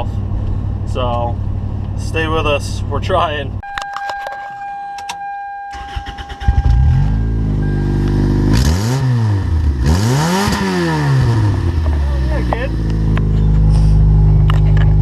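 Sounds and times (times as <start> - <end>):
engine starter cranking: 5.7 - 6.9
loud car engine revving: 6.4 - 15.0.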